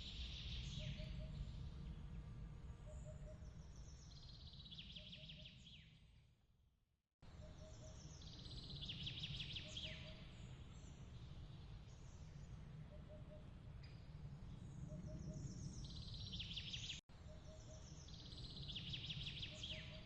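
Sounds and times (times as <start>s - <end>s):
faint low rumble: 0.0s - 5.1s
songbird singing: 0.0s - 6.1s, 7.2s - 20.0s.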